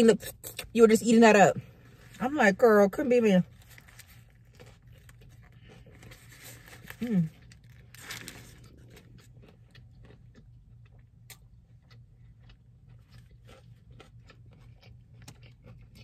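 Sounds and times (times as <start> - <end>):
person chewing: 3.5 - 16.0.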